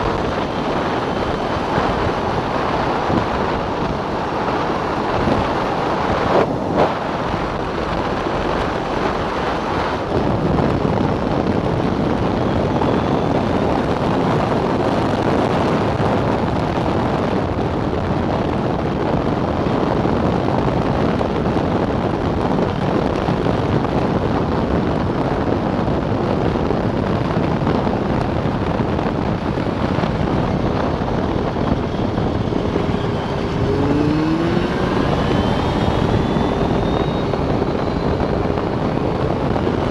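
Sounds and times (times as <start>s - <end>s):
snowmobile engine at speed: 0.0s - 39.9s
wind rush on microphone: 0.0s - 39.9s.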